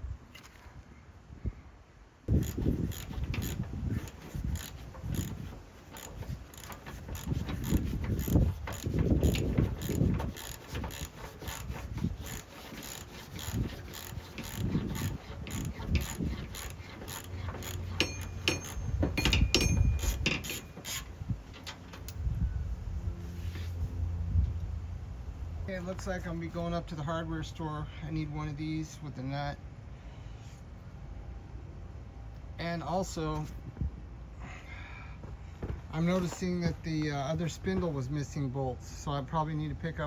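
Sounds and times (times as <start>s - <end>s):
metallic ratchet clicking: 2.3s - 21.1s
knocks of metal parts: 2.3s - 22.2s.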